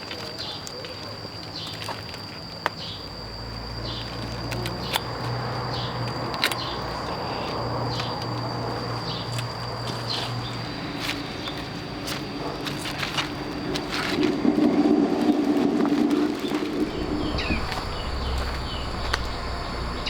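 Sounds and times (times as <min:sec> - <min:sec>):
faint low hum: 0:16.7 - 0:20.0
footsteps: 0:16.7 - 0:20.0
high-pitched drone: 0:16.7 - 0:20.0.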